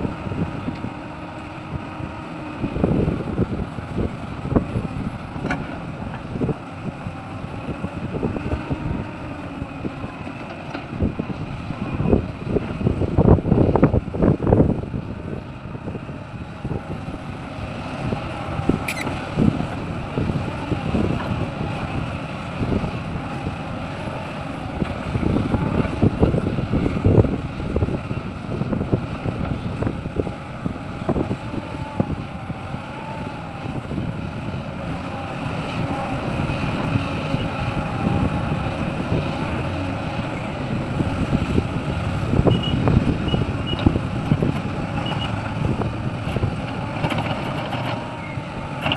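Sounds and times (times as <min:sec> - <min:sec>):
heavy diesel machinery rumbling: 0:00.0 - 0:48.9
wind buffeting microphone: 0:00.0 - 0:48.9
short high beeps: 0:18.9 - 0:19.1.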